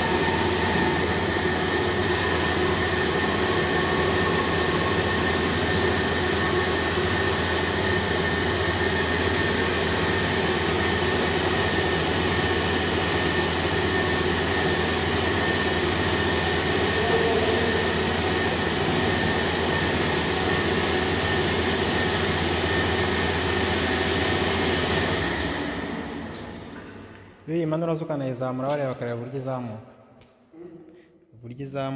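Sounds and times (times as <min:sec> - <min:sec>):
whining tones: 0:00.0 - 0:11.8
machine mechanical drone: 0:00.0 - 0:26.9.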